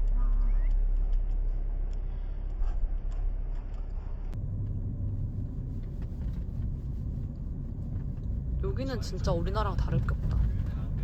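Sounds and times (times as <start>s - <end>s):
car rumbling on the move: 4.3s - 11.0s.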